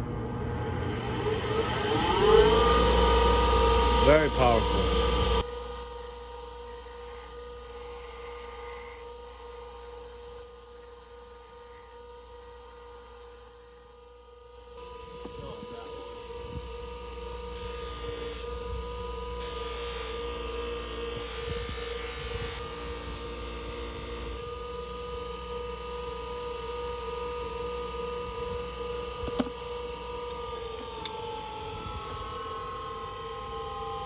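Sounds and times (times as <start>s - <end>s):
bench grinder motor whine: 0.1s - 34.0s.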